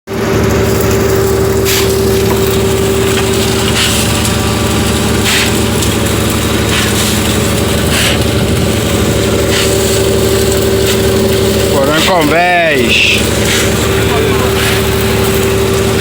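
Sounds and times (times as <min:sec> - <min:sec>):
boat engine running: 0:00.1 - 0:16.0.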